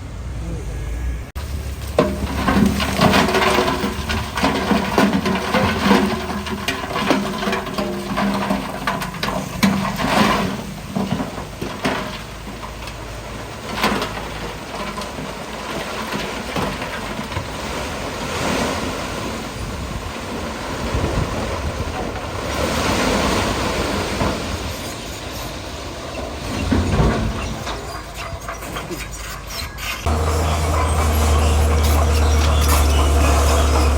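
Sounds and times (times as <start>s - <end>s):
bulldozer diesel engine under load: 0.0s - 18.3s, 19.2s - 33.9s
rock grinding and crunching: 1.6s - 19.5s, 26.6s - 33.9s.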